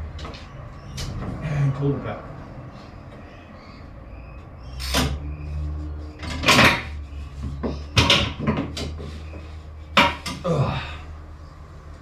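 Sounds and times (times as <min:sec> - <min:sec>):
metal knocks and clatters: 0:06.2 - 0:10.4.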